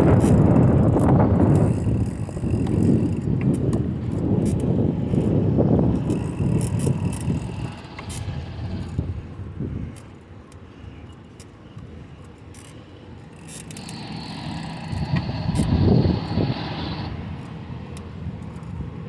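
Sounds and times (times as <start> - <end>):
road noise: 0.0 - 19.0
sharp ticks from bicycle: 0.0 - 19.0
wind rumbling on microphone: 0.0 - 19.0.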